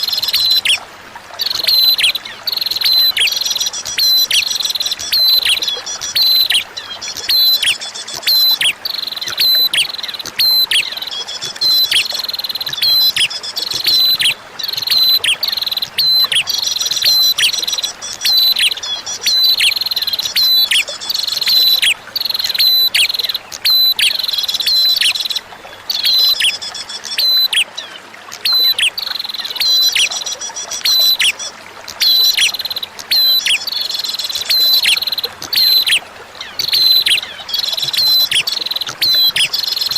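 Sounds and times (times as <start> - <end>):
trickling flowing water: 0.0 - 39.9
bird sharp high chirps: 1.4 - 27.7, 28.4 - 39.9.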